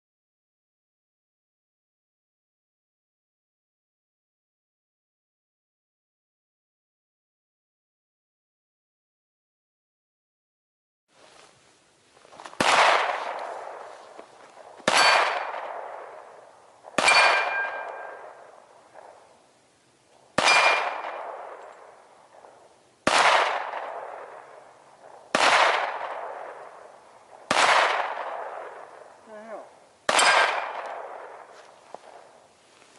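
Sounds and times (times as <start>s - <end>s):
pistol shots with echo: 12.6s - 13.9s, 14.6s - 19.4s, 20.4s - 29.2s, 30.1s - 31.5s
steel target ringing: 14.9s - 15.8s, 17.0s - 18.5s, 20.4s - 22.0s, 30.1s - 30.8s.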